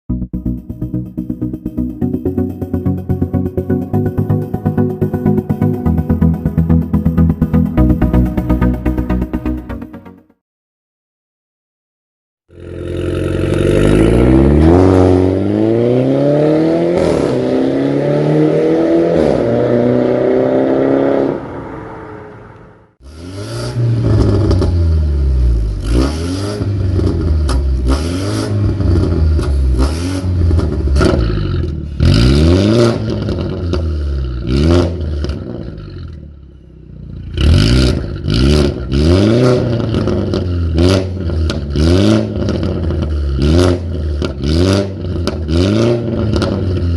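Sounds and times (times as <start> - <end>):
car engine revving: 12.5 - 46.9.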